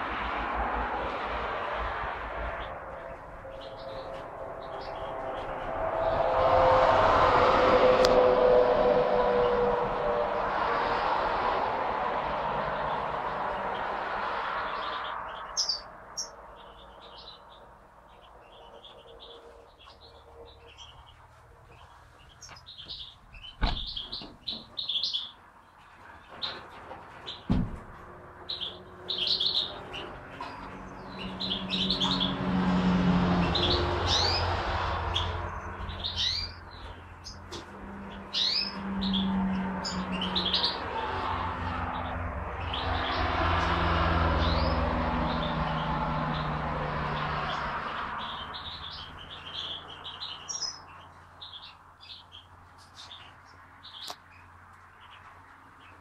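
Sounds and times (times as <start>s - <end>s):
small birds chirping: 2.3s - 5.7s, 12.7s - 56.0s
sharp knocks: 26.9s - 28.1s.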